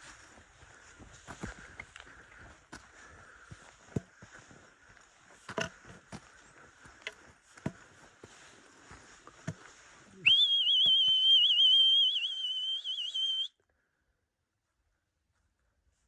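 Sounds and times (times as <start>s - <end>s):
long loud whistle: 10.2s - 13.6s.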